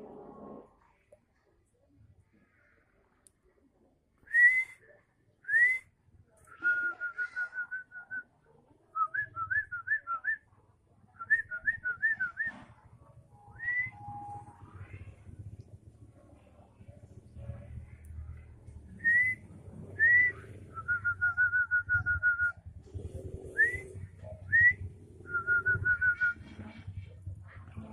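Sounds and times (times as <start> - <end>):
bird singing whistles and warbles: 18.9 - 26.4.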